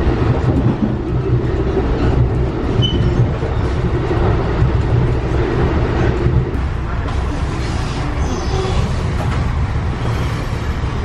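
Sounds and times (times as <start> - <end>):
passenger train rumble: 0.0 - 11.0.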